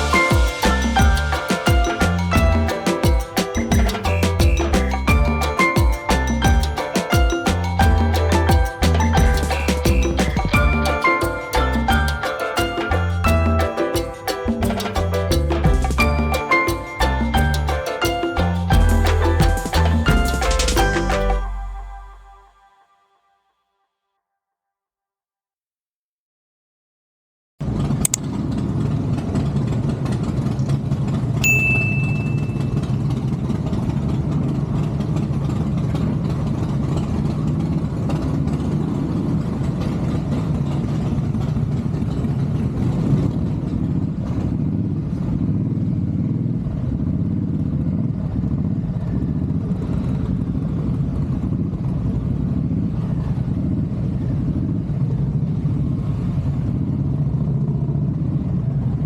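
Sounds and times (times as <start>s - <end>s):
short high-pitched beep: 31.4s - 32.8s.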